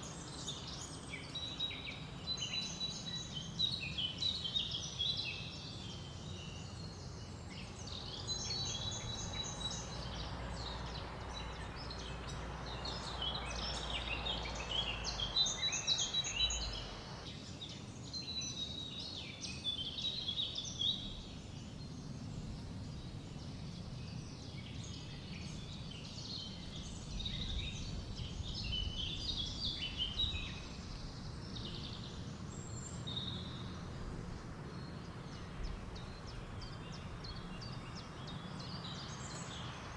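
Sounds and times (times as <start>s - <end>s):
songbirds chirping and singing: 0.0s - 21.0s
low rumble of wind: 0.0s - 39.9s
soft hiss: 14.0s - 17.2s.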